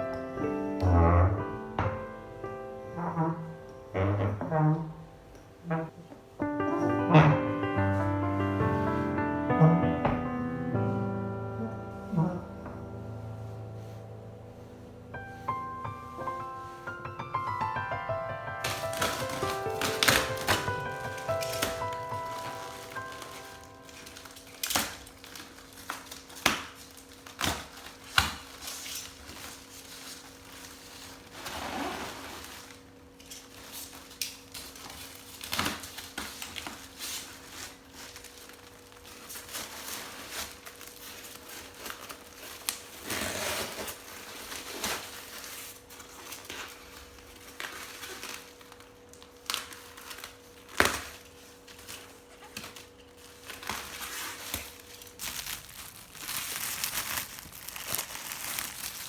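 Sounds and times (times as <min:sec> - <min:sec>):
rustling: 0:18.6 - 0:59.0.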